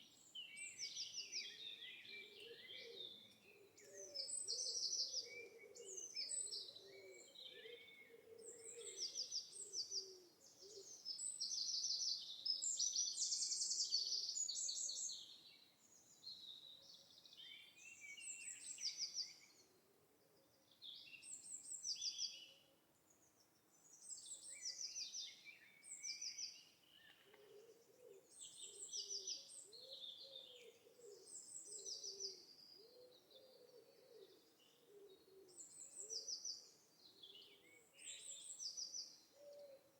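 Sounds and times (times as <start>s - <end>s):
low cooing calls: 27.2s - 36.4s.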